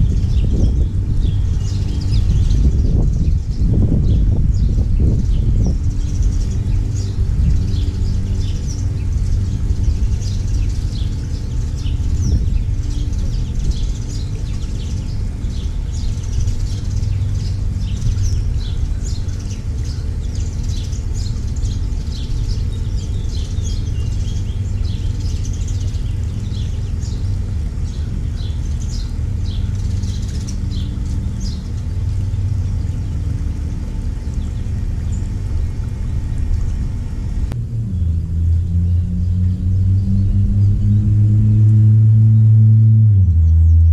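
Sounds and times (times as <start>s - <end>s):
finches chirping: 0.0s - 37.3s
steady low drone: 0.0s - 43.9s.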